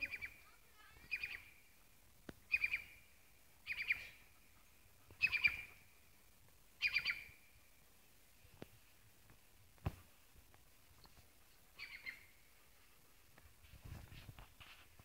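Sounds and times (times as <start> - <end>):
bird calling: 0.0 - 0.4, 1.0 - 1.5, 2.5 - 3.0, 3.6 - 4.4, 5.1 - 5.8, 6.8 - 7.5, 11.8 - 12.5.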